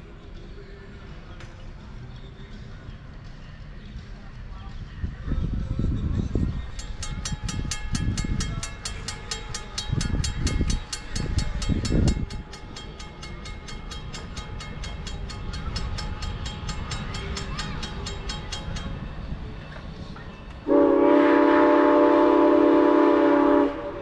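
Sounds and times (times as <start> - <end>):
railroad crossing bell ringing: 6.4 - 24.0.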